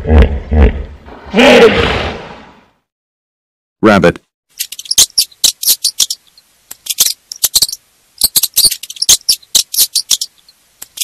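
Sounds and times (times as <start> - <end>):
rabbit squeaking: 4.6 - 11.0.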